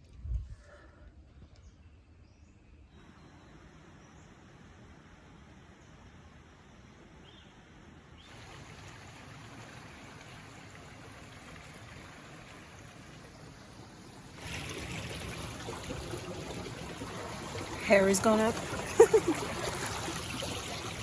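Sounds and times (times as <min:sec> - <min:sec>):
creek water rushing: 0:08.2 - 0:21.0.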